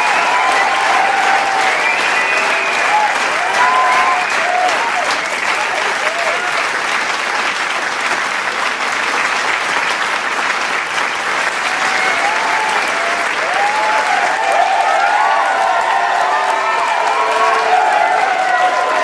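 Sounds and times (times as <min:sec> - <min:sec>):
voices cheering and whooping: 0:00.0 - 0:06.6, 0:11.6 - 0:19.0
crowd applauding: 0:00.0 - 0:19.0.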